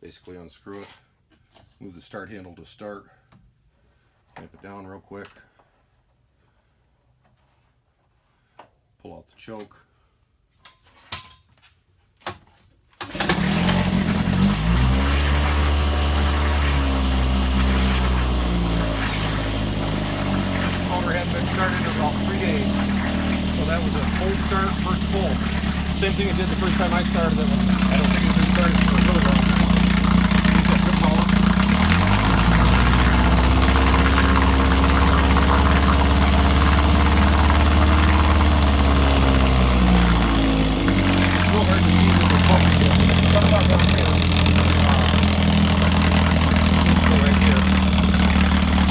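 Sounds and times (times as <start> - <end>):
outboard motor pull-starting: 13.0 - 48.9
outboard motor running: 13.0 - 48.9.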